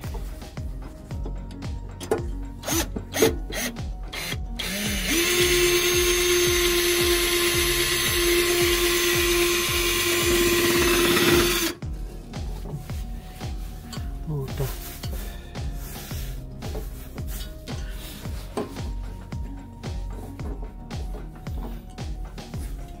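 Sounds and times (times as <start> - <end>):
sharp clicks and knocks: 1.2 - 3.6
power drill boring: 2.6 - 11.8.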